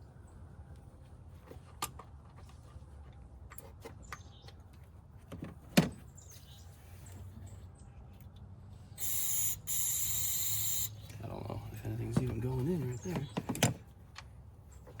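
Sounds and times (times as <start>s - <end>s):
aerosol can spraying: 9.0s - 10.9s.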